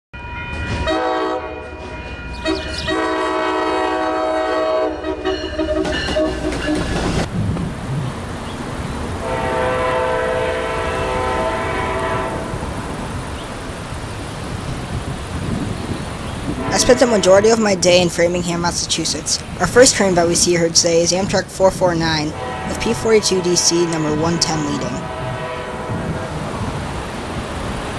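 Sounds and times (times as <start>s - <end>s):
train rumble and wheel clatter: 0.2s - 27.9s
train horn blasts: 0.7s - 7.0s, 9.2s - 12.9s, 16.6s - 18.0s, 22.3s - 26.8s.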